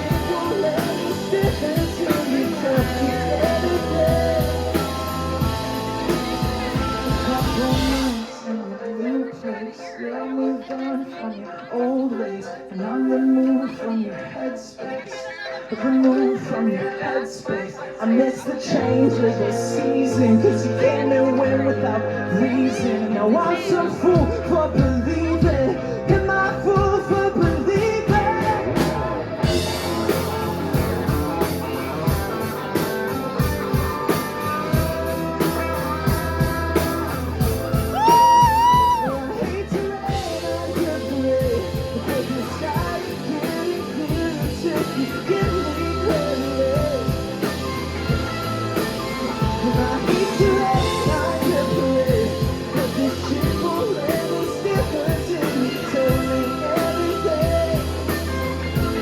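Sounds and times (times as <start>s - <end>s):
live rock band playing: 0.0s - 9.0s, 15.3s - 59.0s
singer holding high notes: 32.4s - 41.1s.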